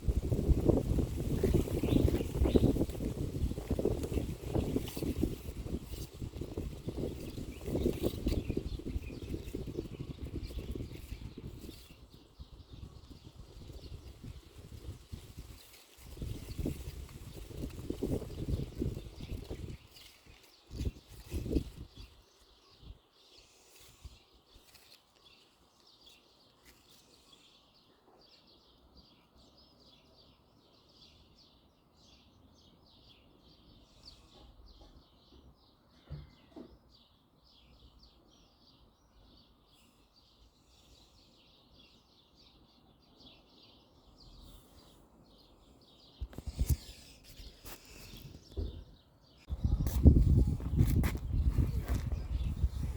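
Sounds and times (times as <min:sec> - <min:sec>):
small songbirds chirping: 0:00.0 - 0:52.9
low thumps or rustles: 0:46.2 - 0:52.9.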